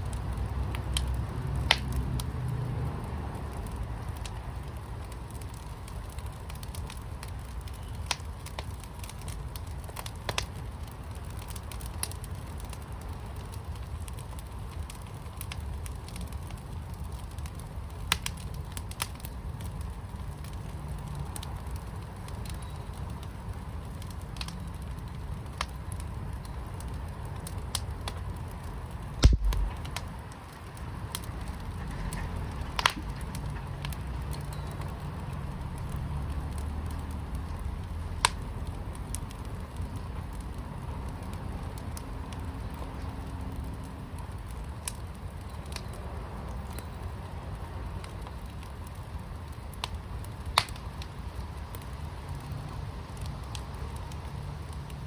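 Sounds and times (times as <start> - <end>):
sharp pops of fire: 0.0 - 55.0
wood fire crackling: 0.0 - 55.0
low thump: 29.2 - 29.8.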